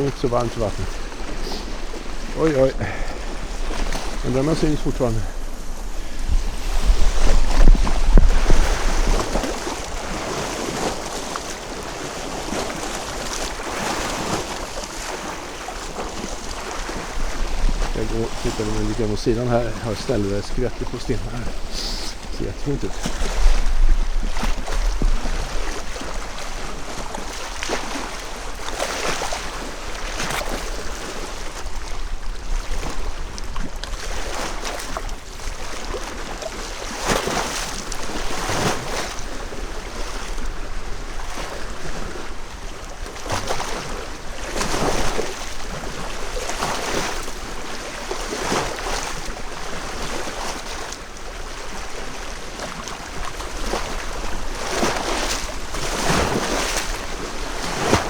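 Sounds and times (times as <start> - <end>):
waves splashing against stones: 0.0 - 58.0
wind rumble on microphone: 0.8 - 11.6, 16.3 - 28.7.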